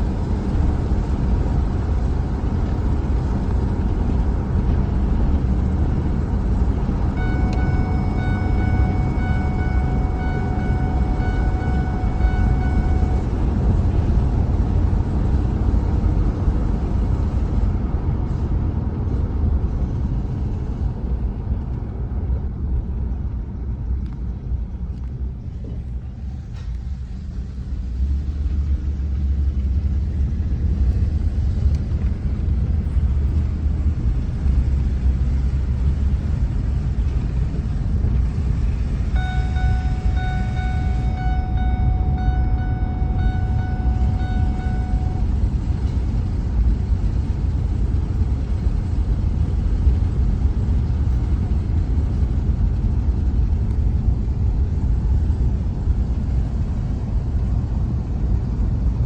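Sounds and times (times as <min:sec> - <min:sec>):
road noise: 0:00.0 - 0:59.0
truck engine rumble: 0:00.0 - 0:59.0
steady high tone: 0:06.6 - 0:14.2, 0:39.0 - 0:46.3.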